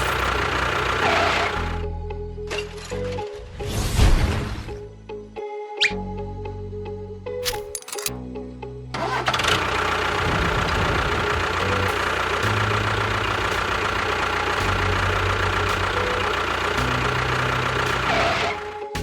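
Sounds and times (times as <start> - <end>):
engine running steadily: 0.0 - 2.1, 8.9 - 19.0.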